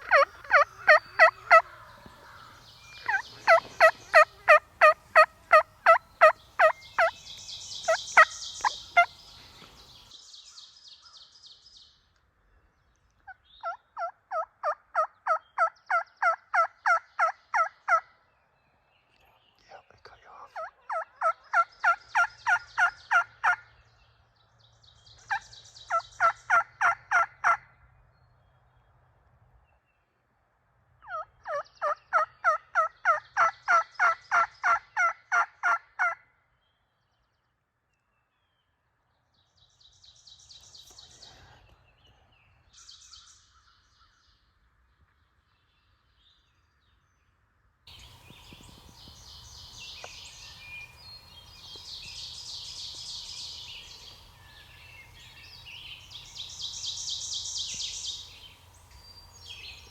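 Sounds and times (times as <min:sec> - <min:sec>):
turkey yelping: 0:00.0 - 0:07.1, 0:07.8 - 0:09.1, 0:13.6 - 0:18.0, 0:20.6 - 0:23.6, 0:25.9 - 0:27.6, 0:31.1 - 0:36.2
rustling hiss: 0:47.9 - 0:59.9.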